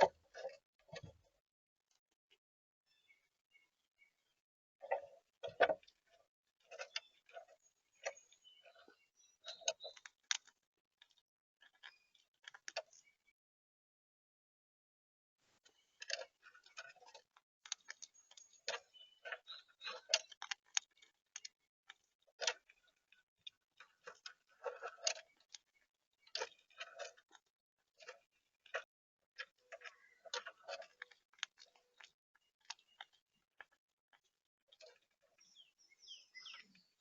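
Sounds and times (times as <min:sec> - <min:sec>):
birds pecking seeds at feeder: 0:02.9 - 0:13.3, 0:15.7 - 0:37.0.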